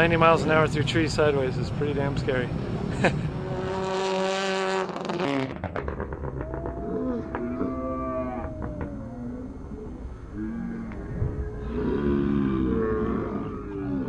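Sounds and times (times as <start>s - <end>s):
rally car engine at full throttle: 0.0s - 7.5s.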